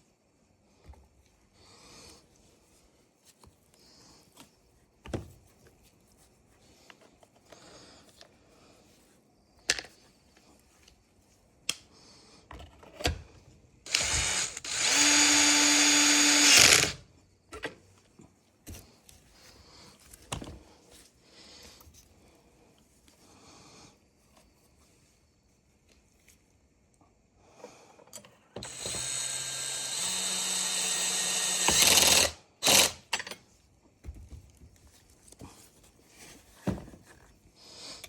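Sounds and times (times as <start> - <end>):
cordless power tool motor: 13.9 - 17.1, 28.6 - 33.1.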